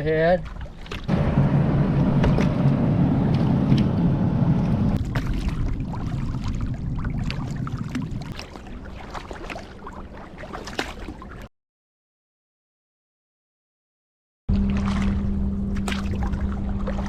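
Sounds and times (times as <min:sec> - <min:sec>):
water splashes: 0:00.0 - 0:11.5, 0:14.5 - 0:17.0
boat engine droning: 0:00.7 - 0:11.4, 0:14.5 - 0:17.0.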